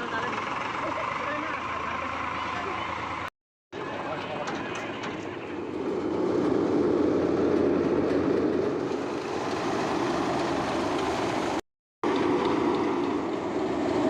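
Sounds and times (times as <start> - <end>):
thresher rumbling and clattering: 3.8 - 14.0.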